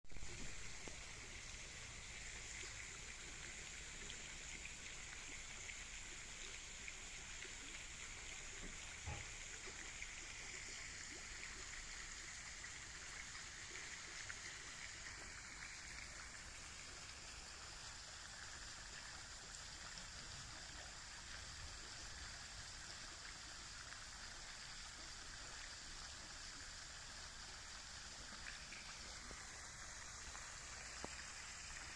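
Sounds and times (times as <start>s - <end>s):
running water hiss: 0.0s - 31.9s.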